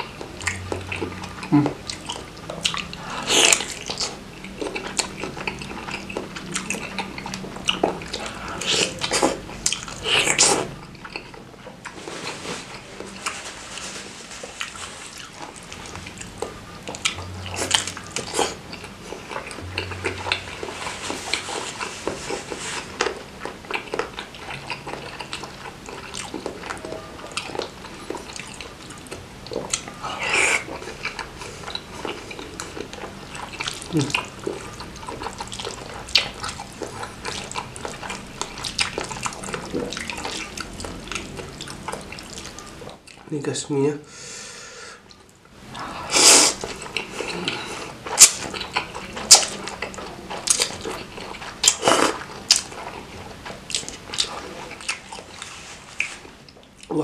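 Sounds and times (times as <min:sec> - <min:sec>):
wet biting and chewing: 0:00.0 - 0:43.3, 0:46.2 - 0:57.0.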